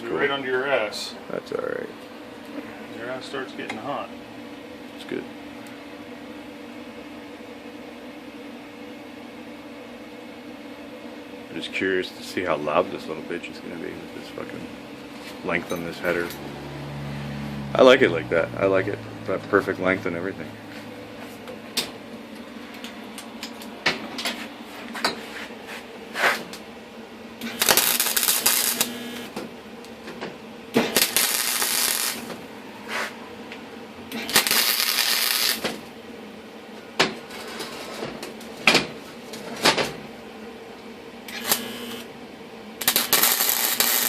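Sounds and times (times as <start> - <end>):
arc welding hiss: 27.4 - 29.2, 30.8 - 32.3, 34.2 - 35.8, 41.3 - 42.1, 42.8 - 44.0.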